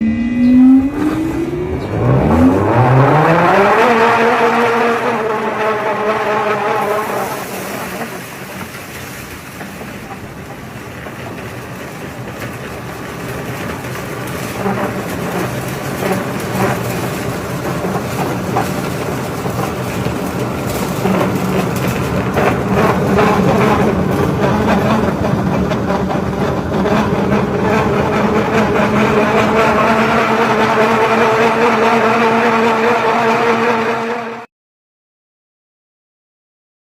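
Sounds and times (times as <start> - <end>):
machine motor whining: 0.0 - 8.8.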